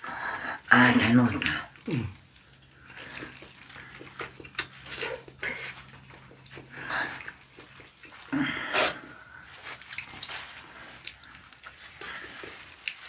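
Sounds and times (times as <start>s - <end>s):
wet chewing mouth smacks: 2.5s - 9.0s, 9.8s - 13.0s.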